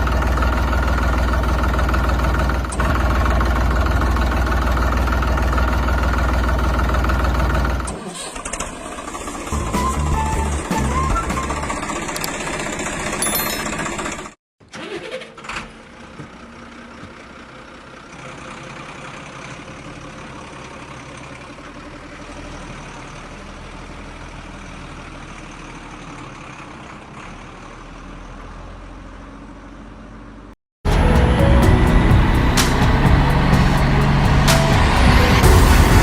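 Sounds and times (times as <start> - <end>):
small engine running: 0.0 - 16.2
background music: 9.5 - 11.8, 30.9 - 36.0.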